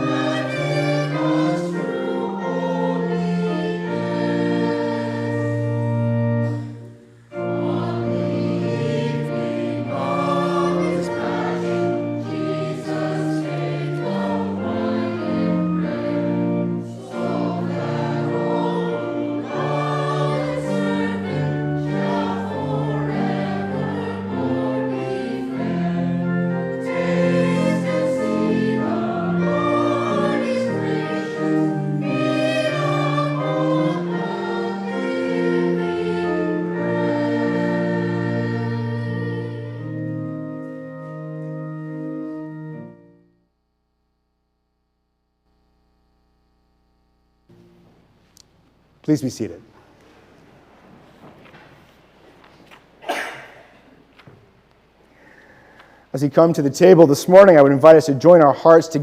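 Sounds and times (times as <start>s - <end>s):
congregation singing a hymn: 0.0s - 43.2s, 55.1s - 59.0s.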